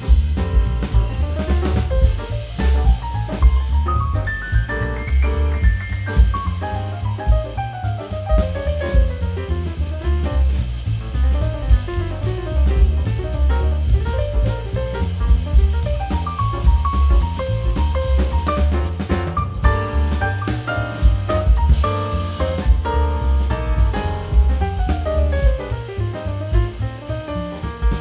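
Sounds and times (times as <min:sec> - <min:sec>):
background music with drum beat: 0:00.0 - 0:28.0.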